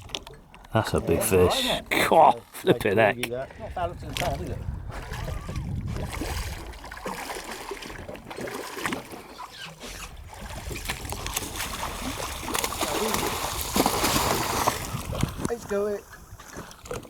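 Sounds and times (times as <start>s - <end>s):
water lapping around boat: 0.0s - 17.0s
wind rumbling on microphone: 3.3s - 8.3s, 9.9s - 17.0s.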